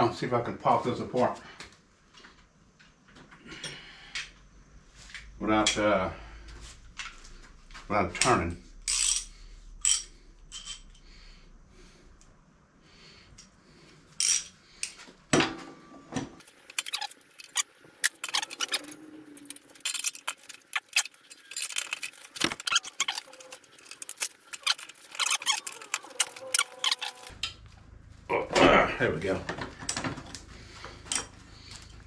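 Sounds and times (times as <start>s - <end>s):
metal tools and parts clinking: 8.8s - 11.0s, 14.2s - 15.0s, 16.4s - 27.4s, 31.0s - 32.0s.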